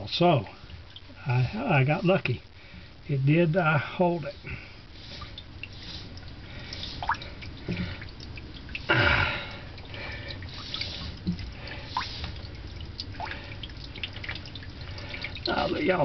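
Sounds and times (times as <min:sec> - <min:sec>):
water dripping: 0:00.0 - 0:16.0.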